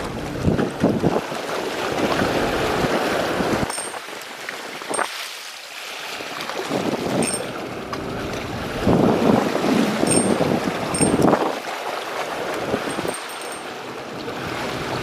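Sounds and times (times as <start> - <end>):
wind buffeting microphone: 0.0 - 5.1, 6.6 - 11.7
sea waves: 0.0 - 15.0.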